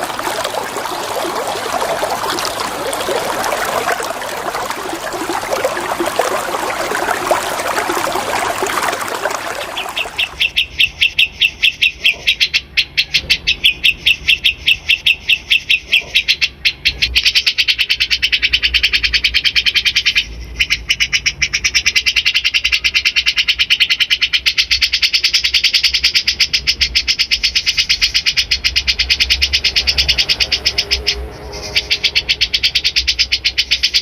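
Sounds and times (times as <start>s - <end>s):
water trickling: 0.0s - 10.5s.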